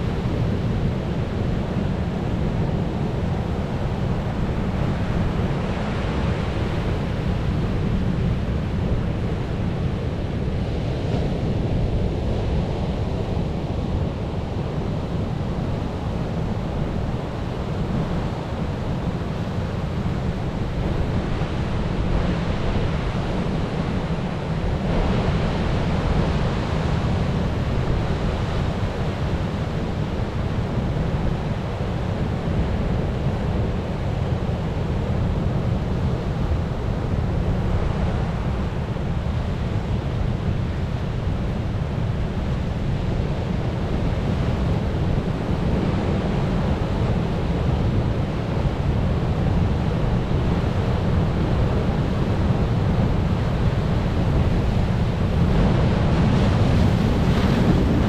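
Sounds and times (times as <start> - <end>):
ocean waves rushing: 37.6 - 58.0.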